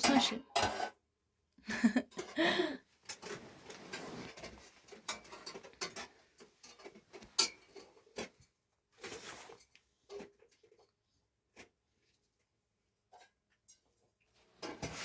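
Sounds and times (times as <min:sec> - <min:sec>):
soft rustling: 0:03.1 - 0:07.4.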